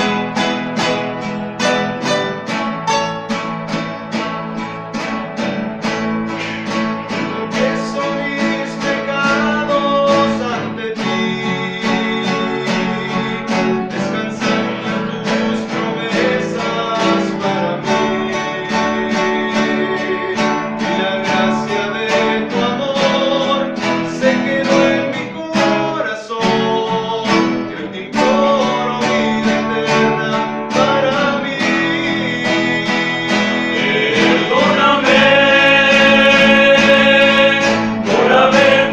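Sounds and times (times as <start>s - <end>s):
acoustic guitars playing: 0.0s - 38.9s.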